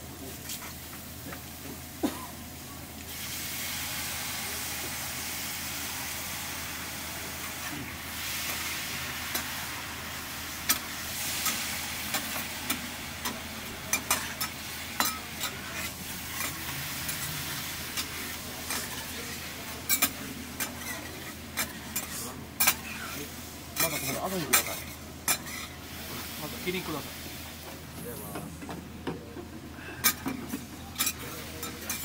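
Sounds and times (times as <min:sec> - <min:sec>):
meat sizzling: 0:03.1 - 0:27.7.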